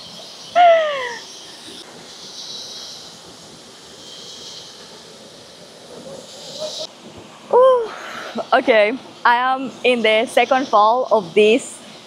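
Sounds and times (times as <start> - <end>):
jungle ambience hiss: 0.0 - 12.0
woman exclaiming: 0.6 - 1.2, 7.5 - 8.0.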